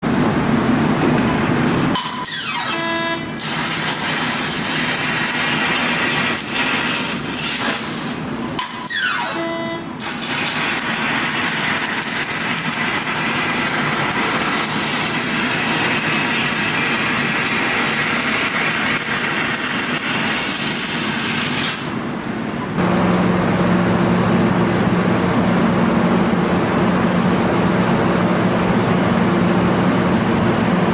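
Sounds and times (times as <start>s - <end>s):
laser cutting hiss: 1.0s - 16.7s
low machine hum: 22.0s - 30.9s.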